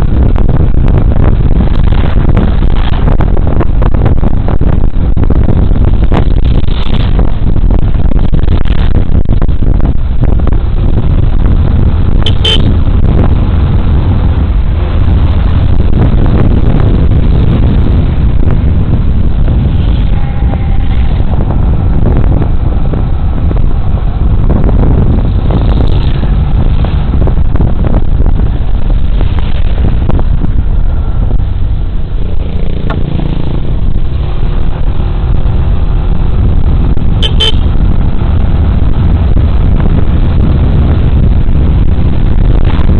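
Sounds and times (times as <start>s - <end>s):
wind and road noise: 0.0s - 42.9s
scooter horn toot: 12.2s - 12.7s, 37.2s - 37.7s.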